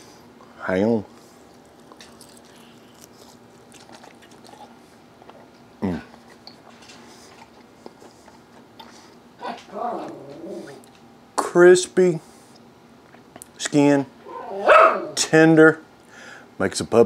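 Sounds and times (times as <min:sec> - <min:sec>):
chewing crispy chicken: 0:01.2 - 0:09.2.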